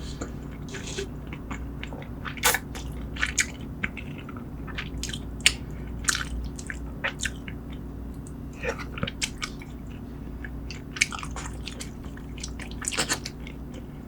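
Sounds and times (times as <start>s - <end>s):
person chewing food: 0.5s - 14.0s.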